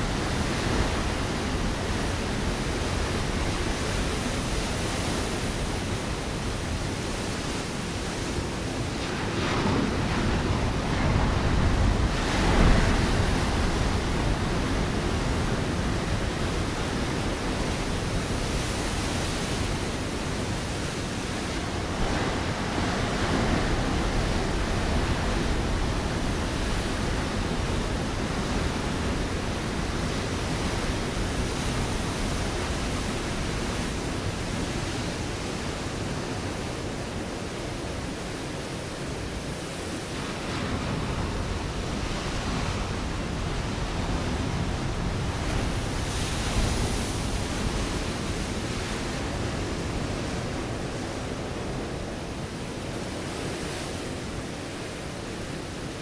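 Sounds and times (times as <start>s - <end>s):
surf breaking on rocky shore: 0.0s - 37.8s.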